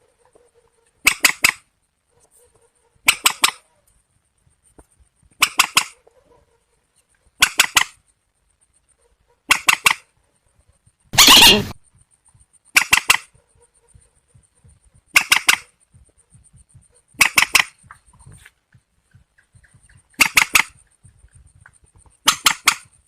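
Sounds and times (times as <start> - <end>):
waterbird harsh calls: 11.2 - 11.8.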